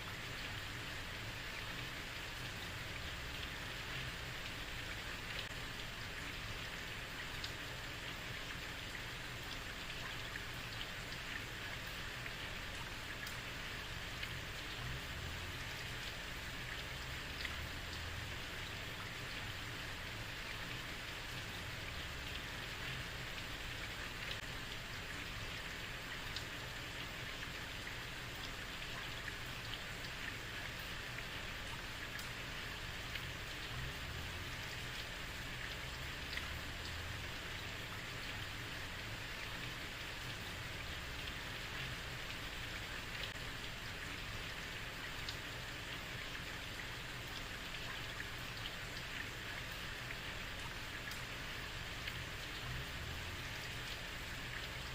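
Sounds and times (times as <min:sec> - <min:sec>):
heavy rain on a street: 0:00.0 - 0:54.9.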